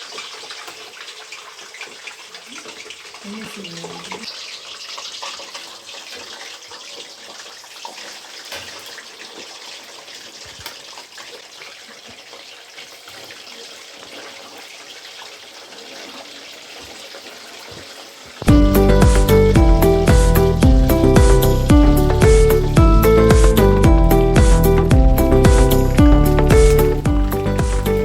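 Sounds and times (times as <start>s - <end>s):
oil crackles and pops: 0.0s - 3.1s, 3.7s - 22.8s
fish deep frying in oil: 0.0s - 28.0s.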